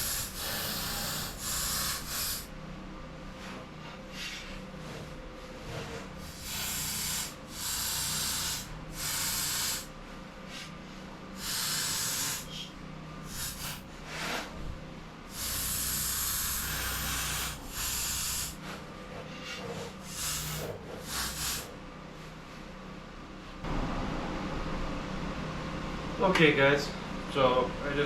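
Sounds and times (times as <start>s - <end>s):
arc welding crackling hiss: 0.0s - 2.5s, 6.2s - 9.9s, 11.4s - 13.8s, 15.3s - 18.6s, 20.1s - 21.7s.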